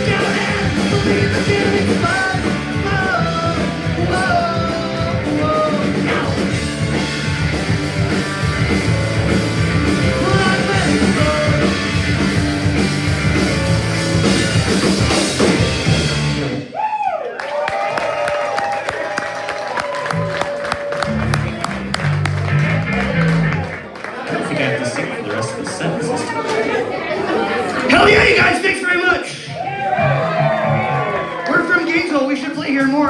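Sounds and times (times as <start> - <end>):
person singing: 0.0 - 6.9, 9.9 - 12.0
punk rock band playing live: 0.0 - 16.6.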